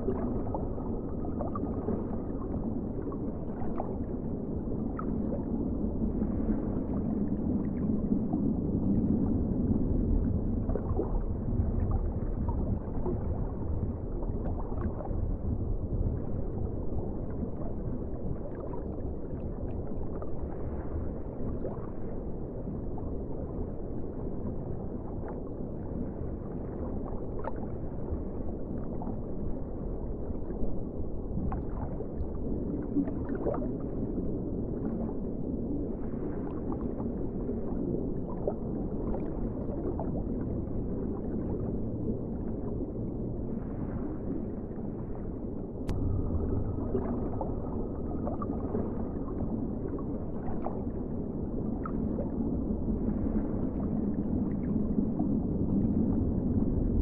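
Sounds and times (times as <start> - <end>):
underwater rush of water: 31.4 - 57.0.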